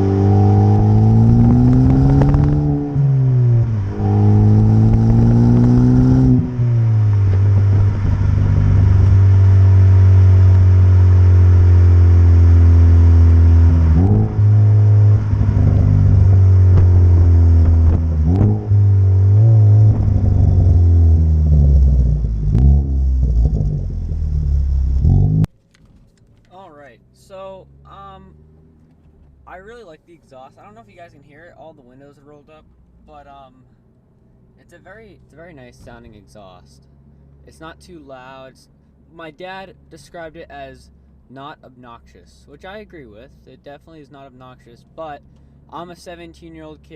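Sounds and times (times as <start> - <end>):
car engine accelerating: 0.0 - 25.5
engine rev blips: 0.0 - 25.5.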